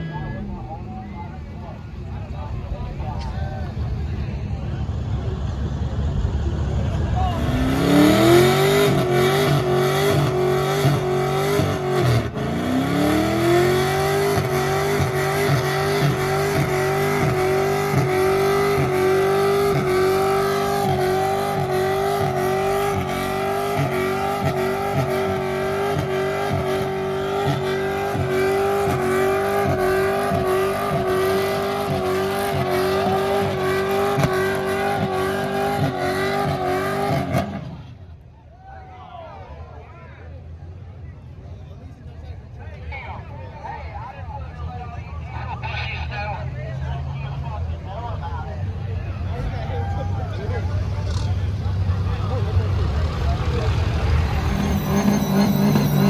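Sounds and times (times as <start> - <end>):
truck engine revving: 2.4 - 38.2, 48.2 - 56.0.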